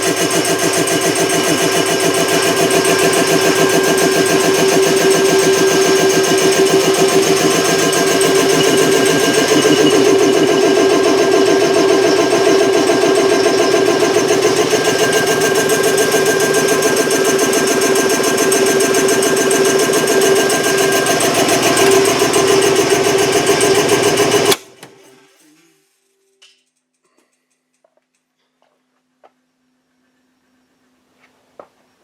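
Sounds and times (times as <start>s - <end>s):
air compressor pumping clatter: 0.0s - 24.6s
motor hum: 0.0s - 24.6s.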